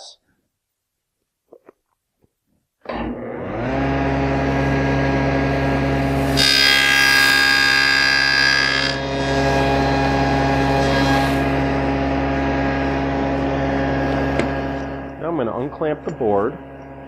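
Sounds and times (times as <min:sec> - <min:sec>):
table saw blade spinning: 0:03.3 - 0:15.2
saw blade cutting wood: 0:06.0 - 0:11.8.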